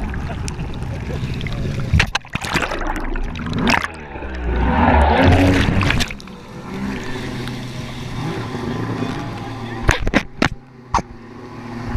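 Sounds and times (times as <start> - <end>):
water rushing and splashing: 0.0 - 11.9
watercraft engine running: 3.3 - 11.9.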